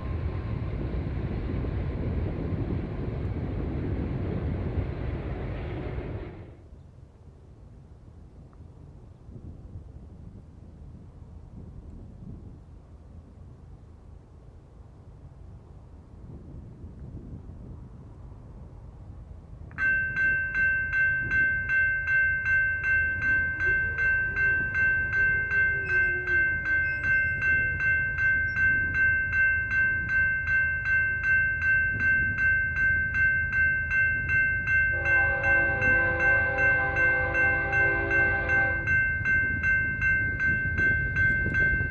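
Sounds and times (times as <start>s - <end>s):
crossing bell ringing: 19.7s - 41.9s
locomotive air horn: 34.9s - 39.0s.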